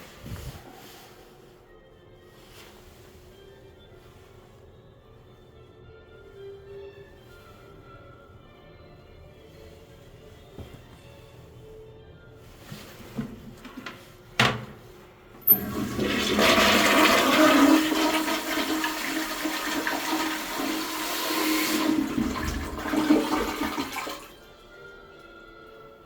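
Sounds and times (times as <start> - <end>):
faint music: 0.0 - 26.0
toilet flush click: 15.4 - 24.3
toilet flushing water rush: 15.5 - 24.4.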